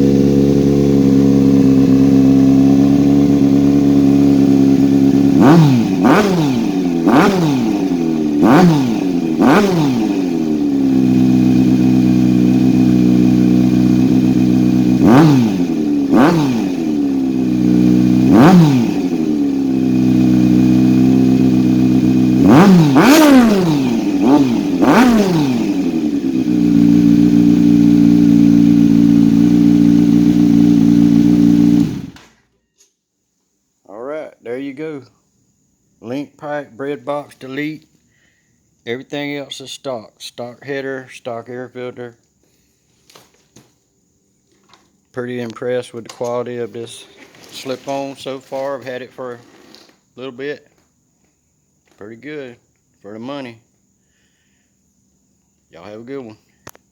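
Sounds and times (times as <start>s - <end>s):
motorcycle engine revving: 0.0s - 32.3s.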